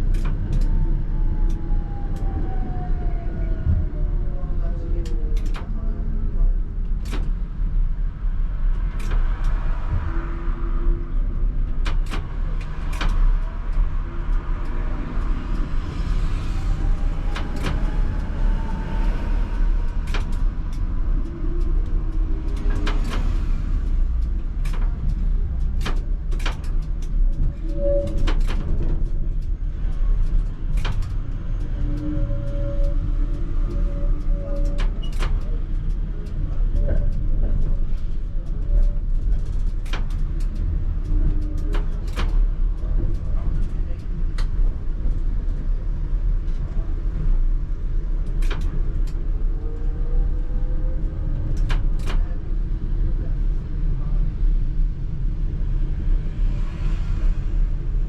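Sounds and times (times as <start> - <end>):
tram wheels rumbling on track: 0.0 - 58.0
sharp clicks and knocks: 5.0 - 5.8, 6.7 - 10.2, 11.4 - 18.3, 19.0 - 46.7, 48.1 - 49.3, 51.3 - 52.3.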